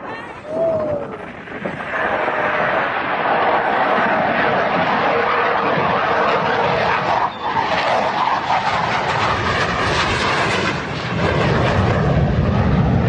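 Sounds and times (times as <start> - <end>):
loud aircraft engine: 0.0 - 13.0.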